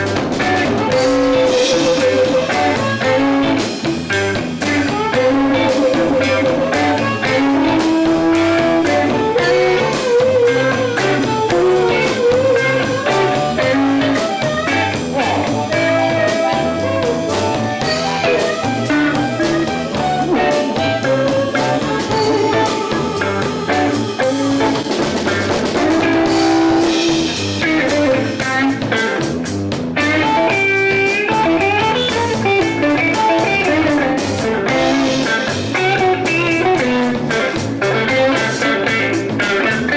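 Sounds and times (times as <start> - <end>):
harmonica: 0.0 - 28.7
drum kit beat: 0.0 - 39.9
guitar: 0.0 - 39.9.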